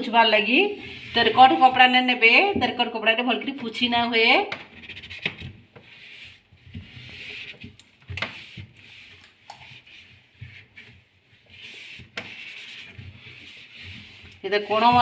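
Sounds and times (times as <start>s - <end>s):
cloth wiping fridge surfaces: 5.7s - 15.0s.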